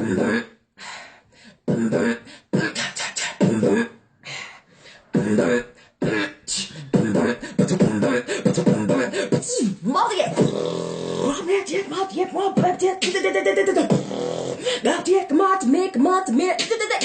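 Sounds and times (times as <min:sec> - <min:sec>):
person beatboxing: 0:00.0 - 0:00.5, 0:01.7 - 0:03.9, 0:05.0 - 0:17.0.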